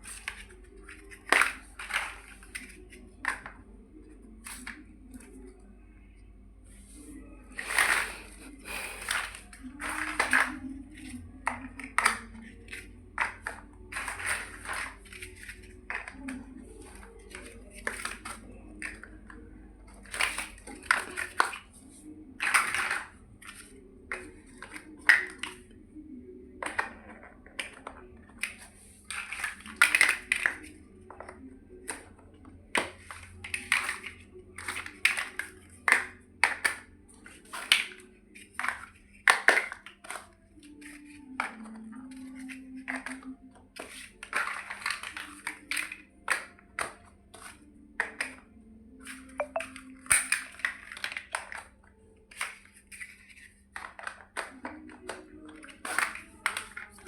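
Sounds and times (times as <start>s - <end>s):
plastic bricks clicking together: 26.6s - 32.1s.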